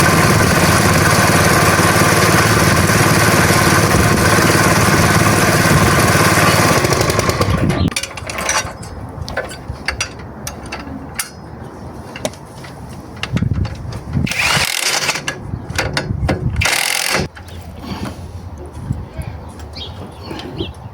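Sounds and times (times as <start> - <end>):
small engine running: 0.0 - 7.9, 16.6 - 17.3.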